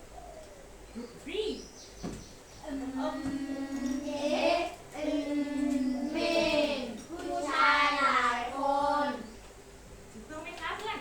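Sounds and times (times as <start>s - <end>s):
children sounding out words together: 2.6s - 9.4s.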